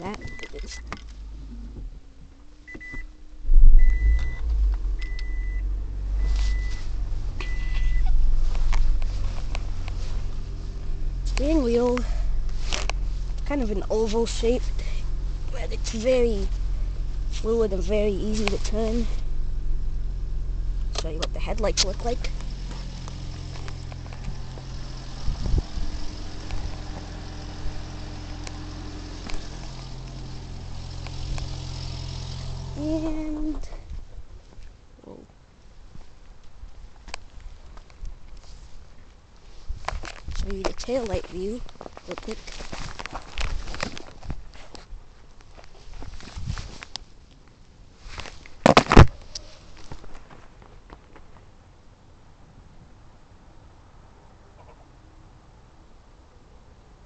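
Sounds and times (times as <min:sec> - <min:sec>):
car engine low rumble: 0:00.0 - 0:57.0
dashboard warning beeps: 0:00.2 - 0:00.9, 0:02.7 - 0:03.1, 0:03.8 - 0:06.8, 0:07.4 - 0:08.1.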